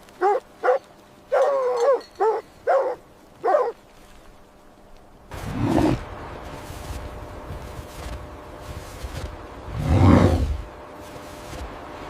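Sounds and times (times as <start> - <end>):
dog barking: 0.2 - 3.8
dog yelping whine: 0.2 - 3.8.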